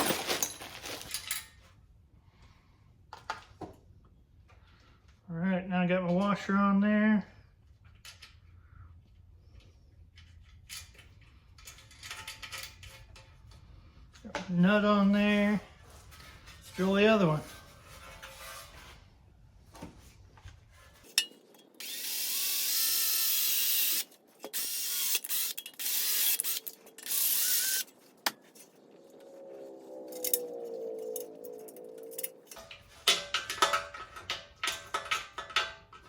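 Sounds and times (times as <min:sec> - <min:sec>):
handling clicks and rattles: 0:00.0 - 0:01.5, 0:30.1 - 0:36.0
power drill boring: 0:21.8 - 0:27.9.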